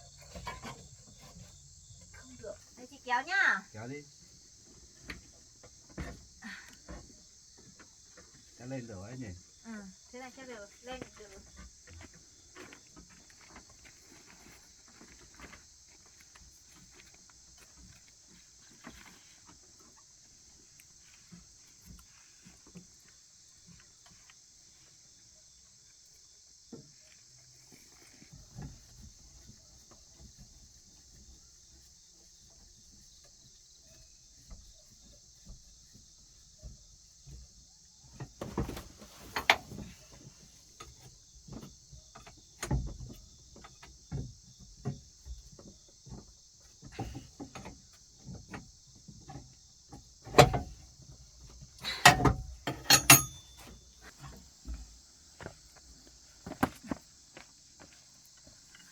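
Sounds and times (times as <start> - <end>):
insects chirring: 0.0 - 58.9.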